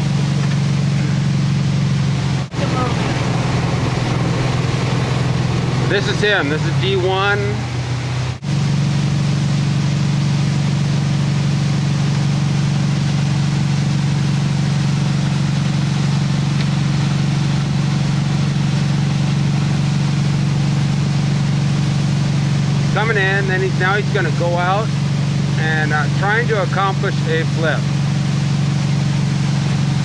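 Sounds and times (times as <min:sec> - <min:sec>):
boat engine humming: 0:00.0 - 0:30.0
water and wind noise: 0:02.6 - 0:06.2.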